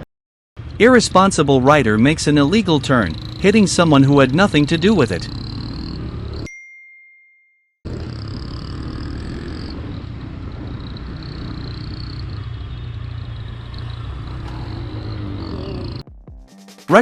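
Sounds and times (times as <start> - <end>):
motorcycle engine running: 0.6 - 6.5, 7.9 - 16.0
road noise: 0.6 - 6.5, 7.9 - 16.0
wind noise on microphone: 9.6 - 11.5.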